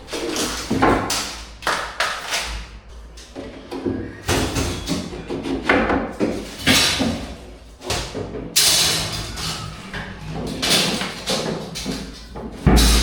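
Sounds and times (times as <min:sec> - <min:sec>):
heavy thump: 0:12.7 - 0:13.0.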